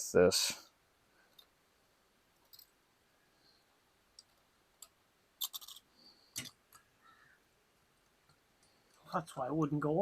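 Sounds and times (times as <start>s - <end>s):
small metal parts clicking and scraping: 2.4s - 2.8s, 4.2s - 6.9s.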